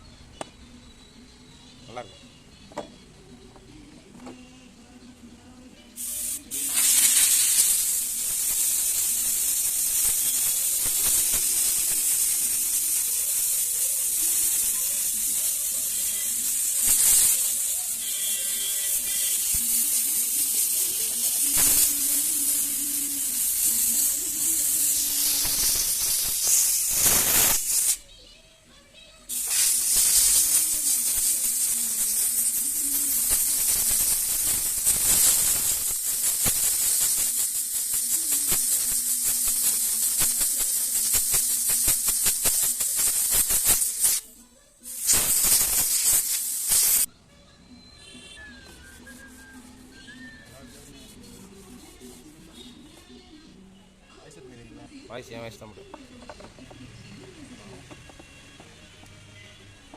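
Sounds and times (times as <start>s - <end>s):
pressurised jet hissing: 6.0s - 28.0s, 29.3s - 44.2s, 44.8s - 47.1s.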